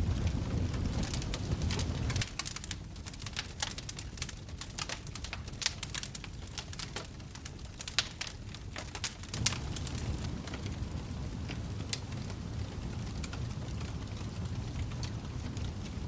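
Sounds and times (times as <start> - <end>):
low rumble of flame: 0.0 - 16.0
wood fire crackling: 0.0 - 16.0.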